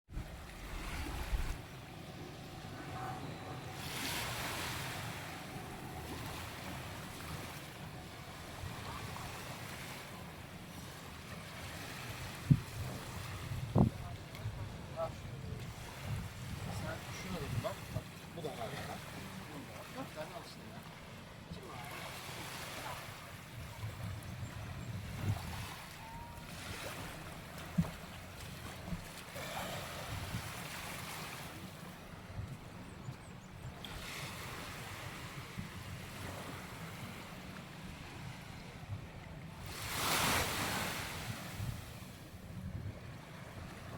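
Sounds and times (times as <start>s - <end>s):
wind buffeting microphone: 0.1s - 10.7s, 11.4s - 18.2s, 23.2s - 29.3s, 30.0s - 30.9s, 32.1s - 43.9s
sea waves washing onto beach: 0.1s - 24.2s, 39.2s - 42.4s.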